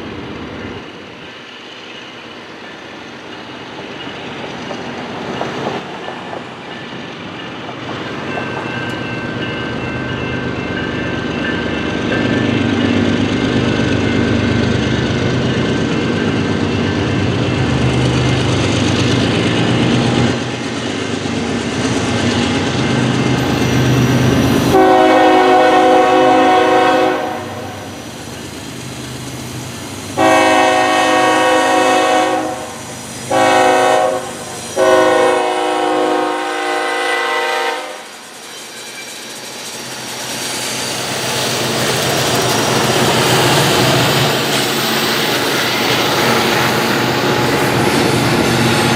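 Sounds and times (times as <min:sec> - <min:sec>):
locomotive rumbling past: 0:00.0 - 0:48.9
train air horn: 0:24.7 - 0:27.8, 0:30.2 - 0:38.1.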